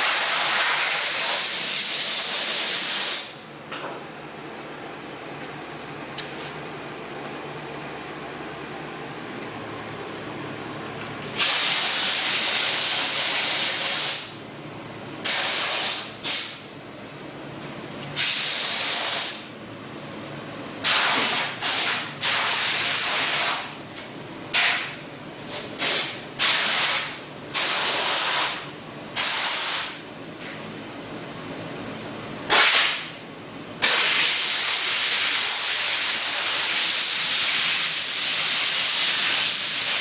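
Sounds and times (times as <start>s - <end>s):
steam hissing bursts: 11.4s - 14.3s, 15.2s - 16.6s, 18.2s - 19.5s, 20.8s - 23.8s, 25.5s - 30.0s, 33.8s - 40.0s.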